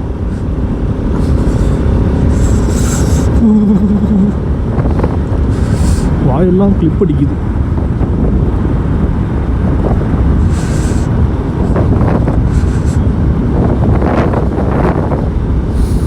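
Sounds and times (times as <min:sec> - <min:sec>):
motorcycle engine: 0:00.0 - 0:06.6
road noise: 0:00.0 - 0:16.0
wind buffeting microphone: 0:00.0 - 0:16.0.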